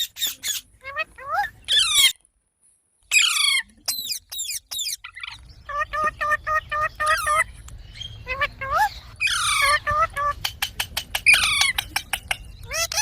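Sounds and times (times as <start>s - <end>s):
parrot screeching: 0.0s - 2.2s, 3.1s - 3.6s, 8.2s - 10.2s.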